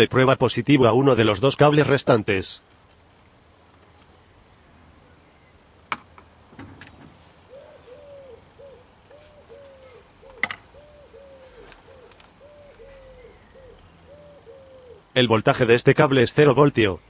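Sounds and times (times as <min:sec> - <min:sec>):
bird hooting: 0:06.6 - 0:15.1.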